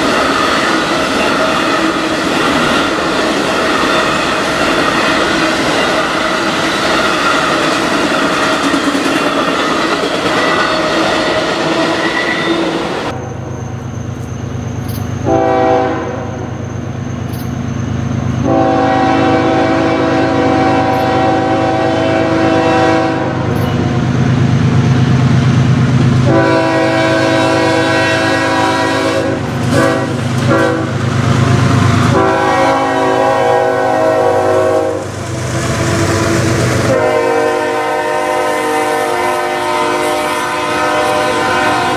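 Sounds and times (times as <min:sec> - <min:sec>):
locomotive engine rumble: 0:00.0 - 0:41.9
train wheels on rails: 0:00.0 - 0:41.9
locomotive air horn blasts: 0:15.2 - 0:16.4, 0:18.4 - 0:23.7, 0:26.2 - 0:31.0, 0:32.1 - 0:41.9.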